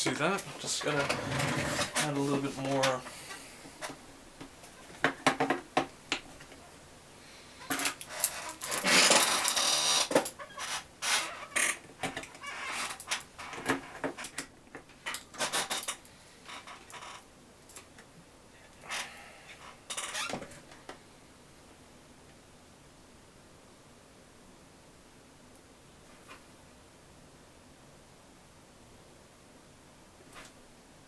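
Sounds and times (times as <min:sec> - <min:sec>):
scraping rustle: 0:00.0 - 0:04.0, 0:07.6 - 0:14.4.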